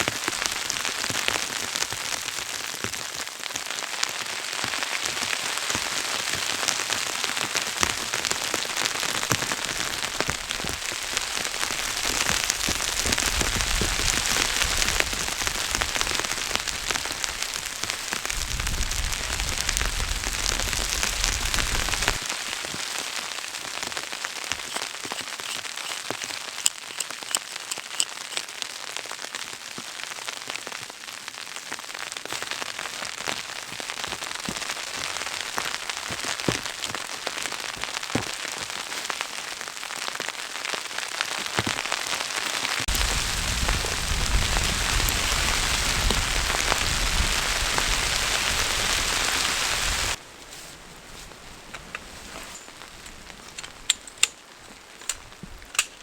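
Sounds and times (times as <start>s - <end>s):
snow pattering on a surface: 0.0s - 26.4s, 29.0s - 53.6s
wind buffeting microphone: 10.3s - 22.2s, 42.9s - 50.2s.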